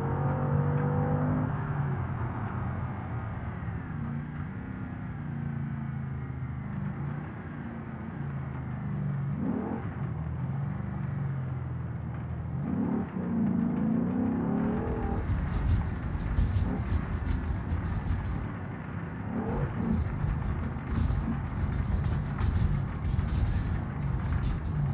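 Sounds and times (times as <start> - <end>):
car engine accelerating: 12.2 - 18.6, 19.3 - 24.9
rough crackling noise: 14.5 - 18.8, 19.4 - 24.9.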